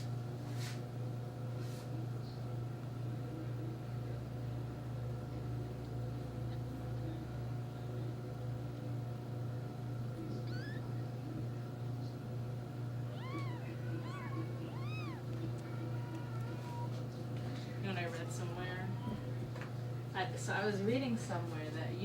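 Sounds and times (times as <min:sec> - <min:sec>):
kittens mewing: 0:10.3 - 0:11.0, 0:13.0 - 0:17.1.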